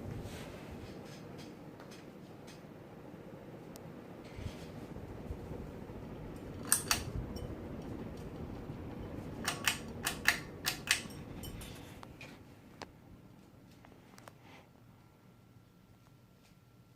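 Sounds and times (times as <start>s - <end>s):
ceiling fan running: 0.0s - 16.9s
sharp clicks: 9.4s - 11.2s.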